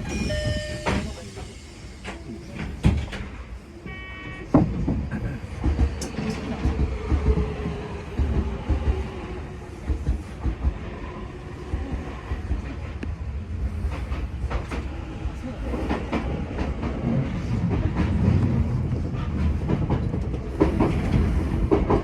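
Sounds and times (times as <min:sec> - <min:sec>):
train doors thudding shut: 0:00.0 - 0:09.1
train rumbling over rail joints: 0:00.0 - 0:22.0
electronic door chime: 0:00.1 - 0:01.0.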